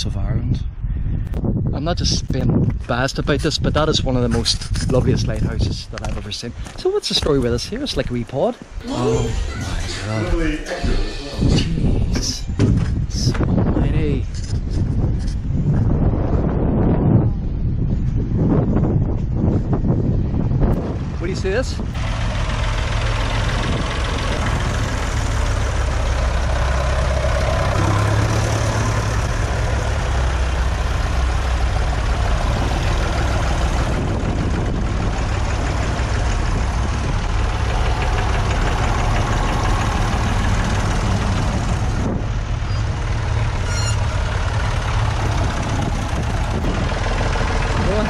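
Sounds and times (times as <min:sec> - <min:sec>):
tractor engine running: 0:20.2 - 0:48.0.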